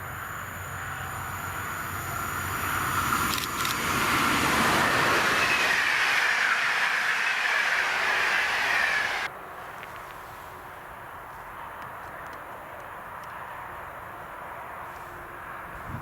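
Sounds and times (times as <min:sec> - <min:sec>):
train passing close by: 0:00.0 - 0:16.0.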